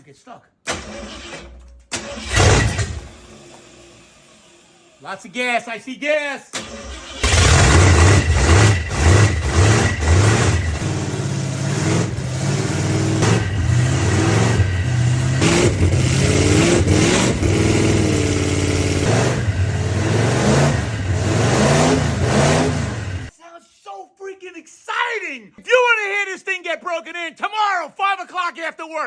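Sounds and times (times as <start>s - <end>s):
car engine revving: 2.0s - 3.3s, 6.6s - 23.3s.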